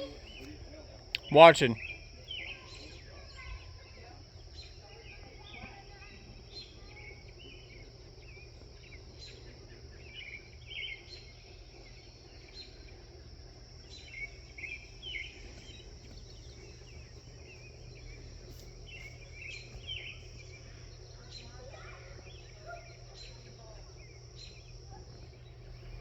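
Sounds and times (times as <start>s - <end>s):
high insect drone: 0.0s - 26.0s
bird chirps: 1.2s - 3.7s, 4.4s - 13.0s, 13.8s - 26.0s.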